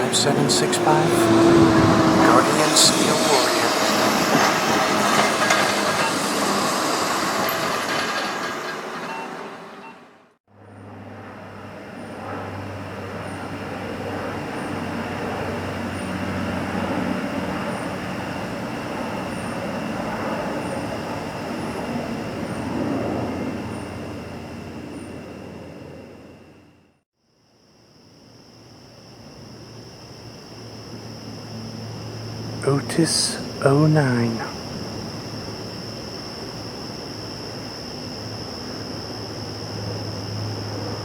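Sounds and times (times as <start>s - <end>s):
faint high whine: 0.0s - 7.6s, 31.7s - 41.0s
military aircraft engine: 0.0s - 27.0s, 29.3s - 41.0s.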